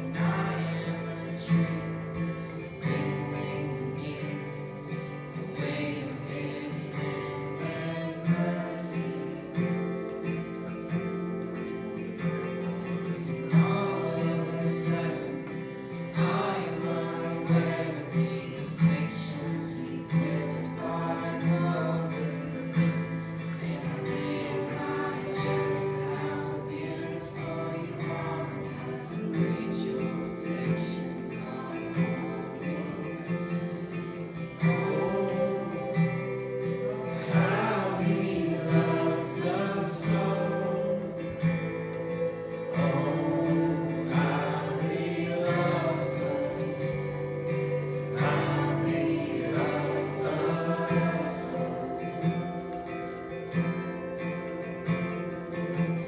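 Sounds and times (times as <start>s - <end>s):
acoustic guitar strumming: 0.0s - 56.0s
voices singing: 0.0s - 56.0s.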